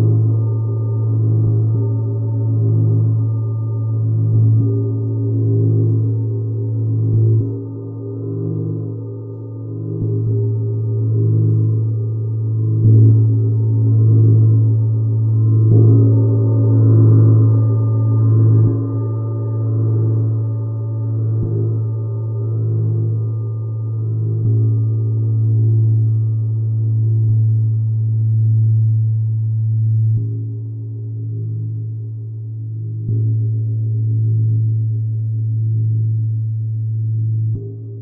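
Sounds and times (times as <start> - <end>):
low ringing metal tone: 0.0 - 38.0.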